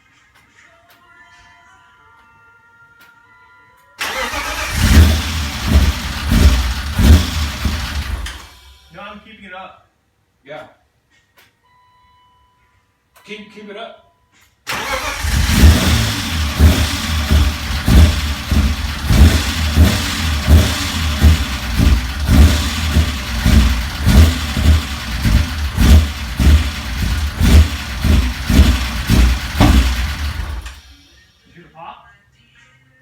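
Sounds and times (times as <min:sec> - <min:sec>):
car engine rough idle: 0:04.3 - 0:08.8, 0:14.7 - 0:31.1.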